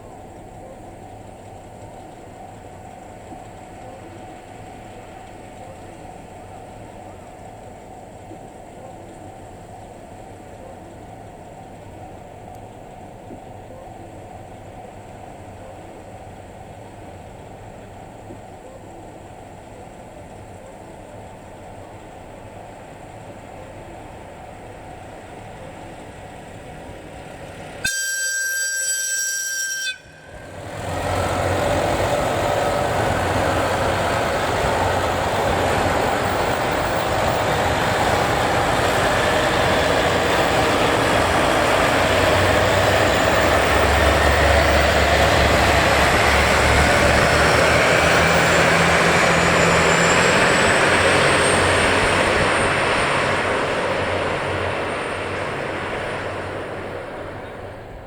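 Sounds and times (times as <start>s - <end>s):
train running loudly: 0.0s - 58.0s
rising whine: 27.4s - 58.0s
train horn blast: 27.8s - 34.2s.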